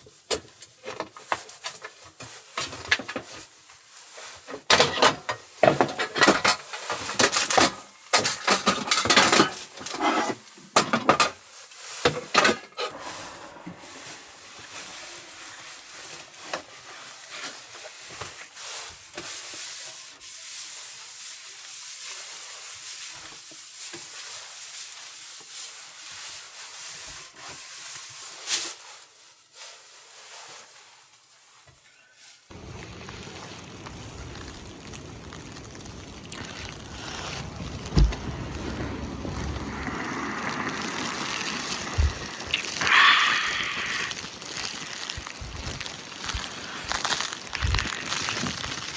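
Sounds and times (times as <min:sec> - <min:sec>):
objects rubbing and scraping: 0:12.4 - 0:15.7, 0:36.6 - 0:48.9.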